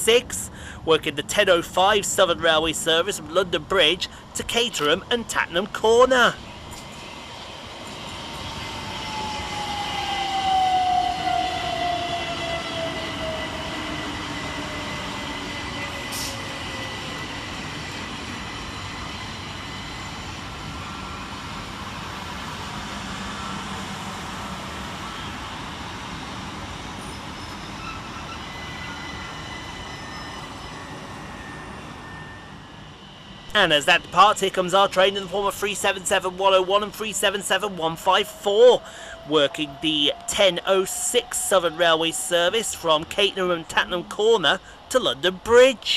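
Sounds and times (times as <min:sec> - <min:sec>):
electric train motor whine: 0:06.5 - 0:33.4.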